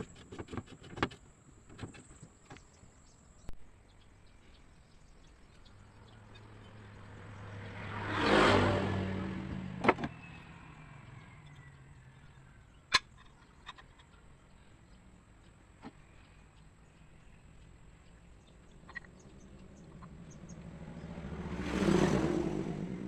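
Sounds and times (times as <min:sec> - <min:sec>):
motor vehicle passing by: 0:04.6 - 0:12.9, 0:16.0 - 0:23.0.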